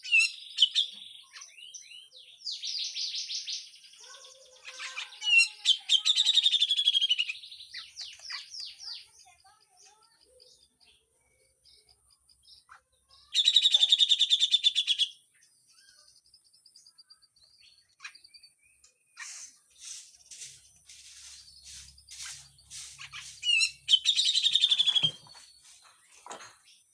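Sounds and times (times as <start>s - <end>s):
bird chirps and calls: 0.0s - 26.9s
bird harsh rapid trills: 19.2s - 26.2s.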